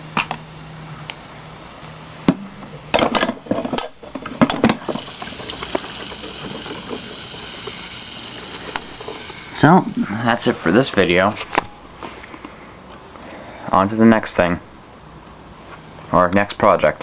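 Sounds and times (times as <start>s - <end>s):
faint hiss: 0.0s - 17.0s
low steady hum: 0.0s - 17.0s
objects knocking and clattering: 2.3s - 7.8s.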